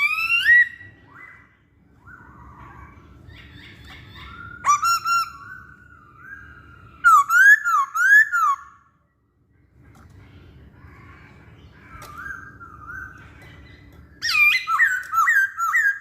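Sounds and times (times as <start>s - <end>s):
bird singing loud whistles: 3.5s - 8.8s.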